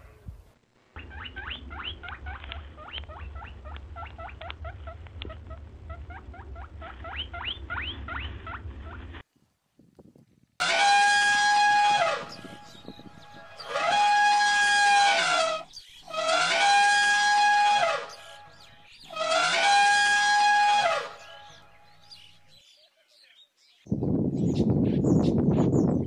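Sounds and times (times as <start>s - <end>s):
small animal squeaking: 1.0s - 9.0s
elephant trumpeting: 10.6s - 12.8s, 13.6s - 18.4s, 19.1s - 21.6s.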